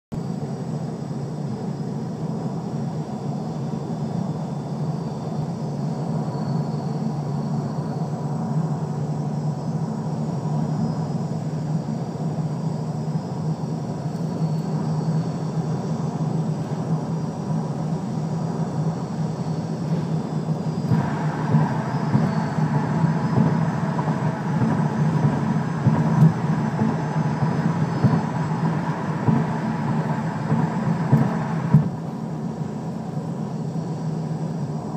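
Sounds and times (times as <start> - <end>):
car engine low drone: 0.2 - 34.9
car whine: 2.2 - 34.9
broad high noise: 18.5 - 32.5.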